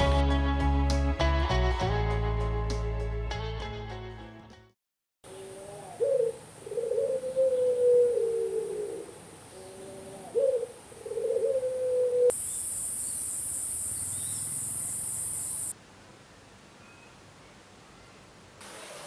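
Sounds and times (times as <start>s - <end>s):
dove cooing: 5.3s - 12.4s
high-pitched hiss: 12.3s - 15.8s.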